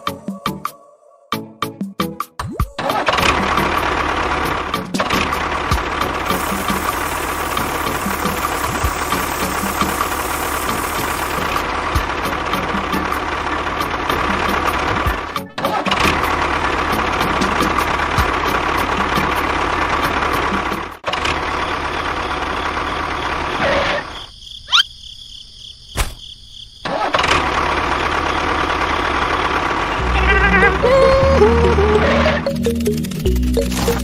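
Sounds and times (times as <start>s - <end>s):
small motor whining: 6.2s - 11.6s.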